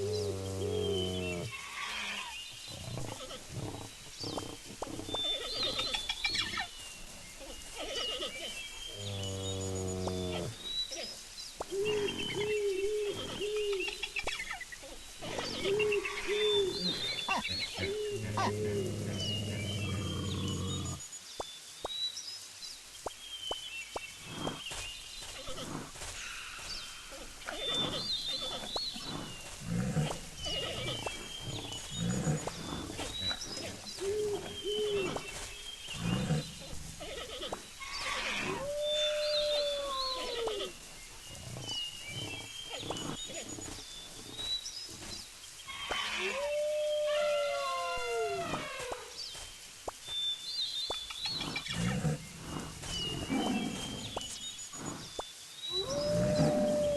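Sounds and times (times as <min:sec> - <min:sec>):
wild animal calls: 0:15.2 - 0:21.0, 0:55.7 - 0:56.9.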